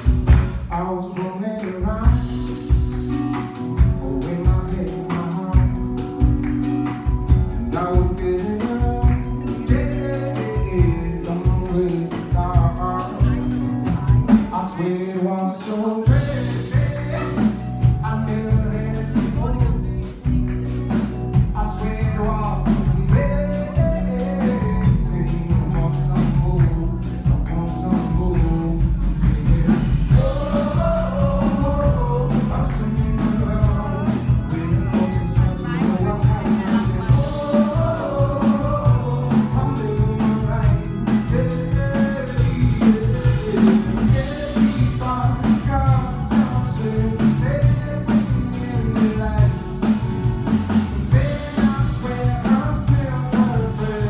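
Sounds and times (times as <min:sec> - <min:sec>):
bass line: 0:00.0 - 0:00.9, 0:01.8 - 0:14.8, 0:16.1 - 0:54.0
steady beat: 0:00.0 - 0:14.6, 0:16.0 - 0:54.0
man singing: 0:00.0 - 0:54.0.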